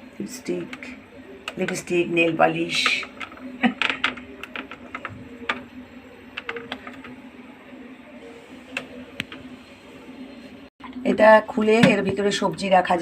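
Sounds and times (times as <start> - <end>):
plastic parts clicking and tapping: 2.8 - 5.7, 6.3 - 7.2.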